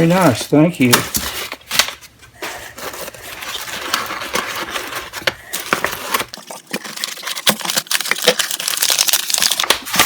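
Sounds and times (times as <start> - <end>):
packing material rustling: 0.0 - 10.0.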